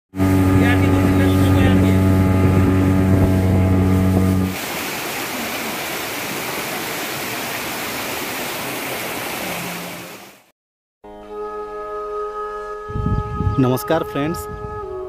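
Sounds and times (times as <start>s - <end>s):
motorboat engine humming: 0.1s - 10.4s
waterfall rushing: 4.5s - 10.5s.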